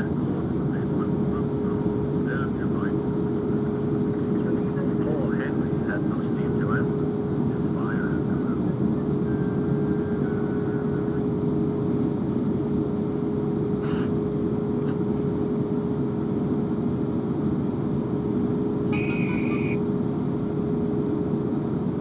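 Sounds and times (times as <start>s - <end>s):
constant hum: 0.0s - 22.0s.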